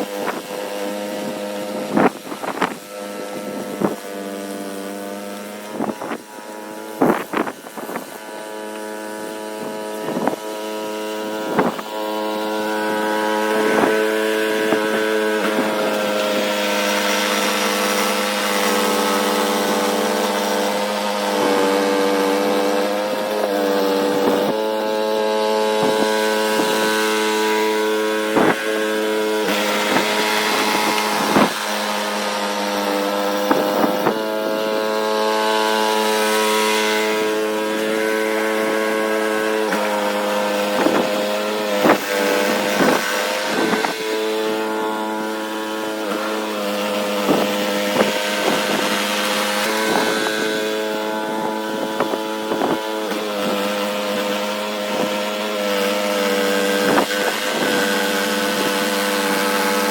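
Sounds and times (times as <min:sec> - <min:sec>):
snowblower engine running: 0:00.0 - 0:59.9.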